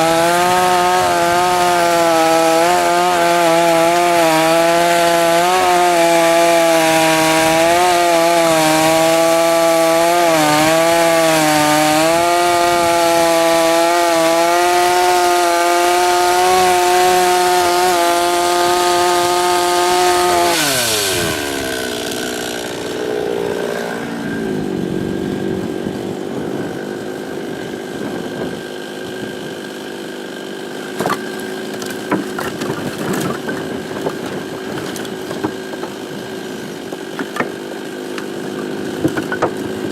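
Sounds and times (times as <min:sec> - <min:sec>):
chainsaw cutting logs: 0:00.0 - 0:39.9
sharp knocks: 0:31.0 - 0:36.0, 0:36.9 - 0:37.6, 0:38.9 - 0:39.8.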